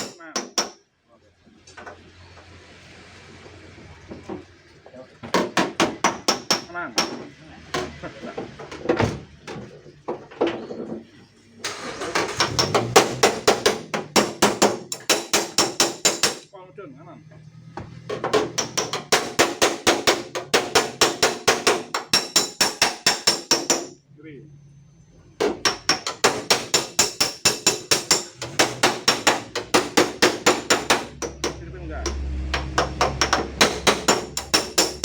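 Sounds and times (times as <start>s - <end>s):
hammer tapping sheet steel: 0.0s - 0.8s, 5.3s - 8.0s, 12.4s - 16.5s, 18.1s - 24.0s, 25.4s - 35.0s.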